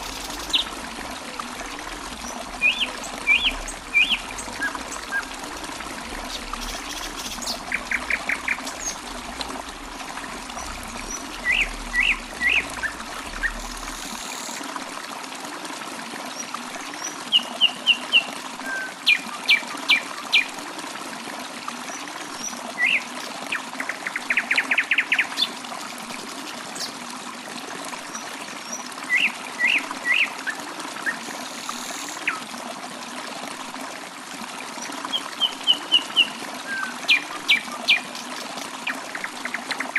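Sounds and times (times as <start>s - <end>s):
water trickling: 0.0s - 39.9s
birds chirping: 1.6s - 14.0s.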